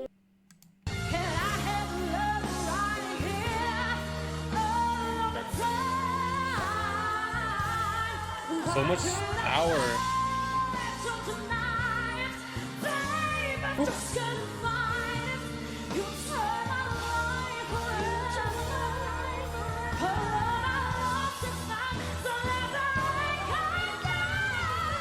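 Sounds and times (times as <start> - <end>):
woman singing a pop ballad: 1.0 - 25.0
band accompaniment: 8.6 - 10.3.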